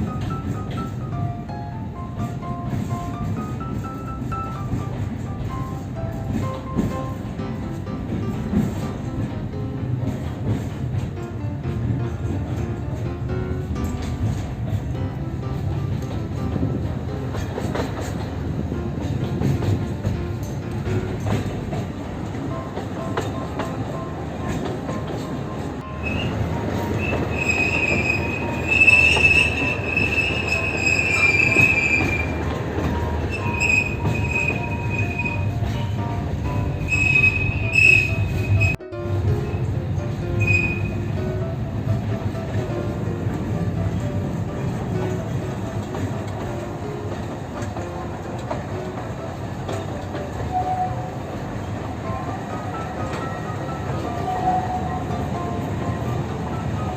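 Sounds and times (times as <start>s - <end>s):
train wheels rumbling: 0.0s - 56.9s
high wheel squeal: 25.9s - 35.6s, 36.8s - 38.8s, 40.4s - 41.1s.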